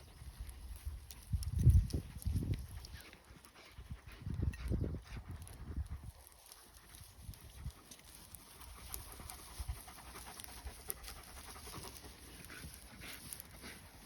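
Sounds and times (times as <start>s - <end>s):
dog panting: 2.6s - 14.0s.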